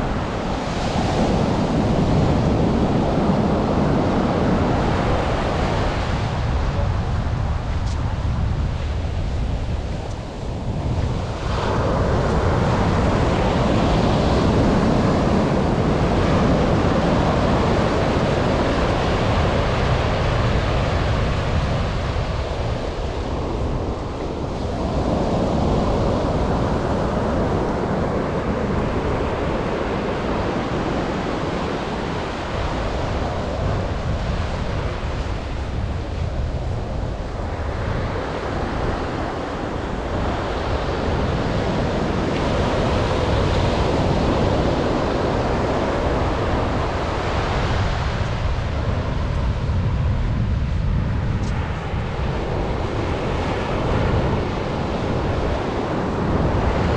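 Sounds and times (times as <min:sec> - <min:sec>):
surf breaking on beach: 0:00.0 - 0:56.9
wind rumbling on microphone: 0:00.0 - 0:56.9.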